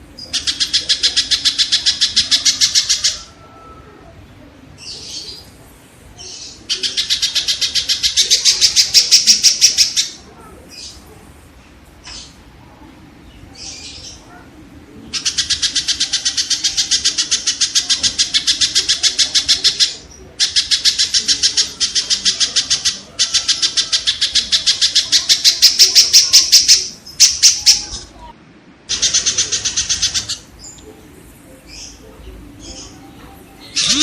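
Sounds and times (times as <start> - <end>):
kingfisher calling rapid harsh notes: 6.7 - 10.2, 15.2 - 27.9, 28.9 - 30.5, 33.8 - 34.0.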